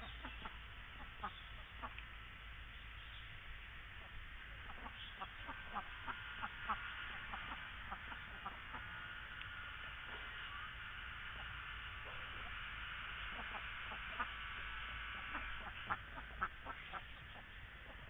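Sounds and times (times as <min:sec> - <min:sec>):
ducks quacking: 0:00.0 - 0:02.0, 0:03.9 - 0:09.0, 0:13.3 - 0:14.4, 0:15.2 - 0:18.0.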